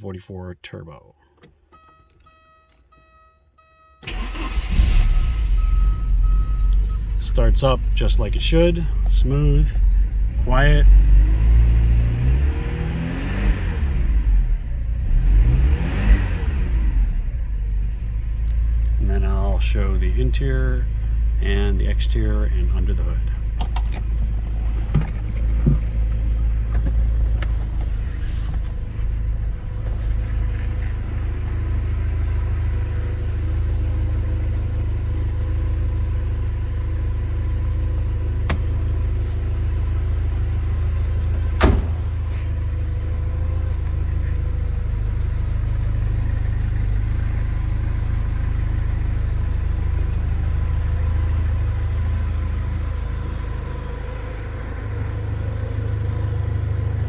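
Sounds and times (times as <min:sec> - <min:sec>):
car engine idling: 0:01.2 - 0:57.0.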